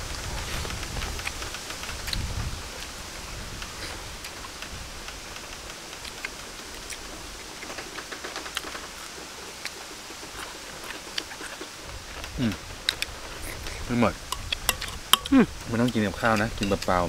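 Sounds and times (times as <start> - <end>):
steady background hiss: 0.0 - 17.0
people chewing with mouth clicks: 0.2 - 17.0.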